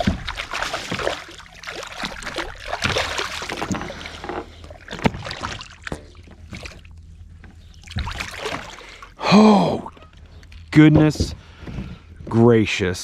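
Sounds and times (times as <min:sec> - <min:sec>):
water splashing: 0:00.0 - 0:07.1, 0:07.8 - 0:10.0.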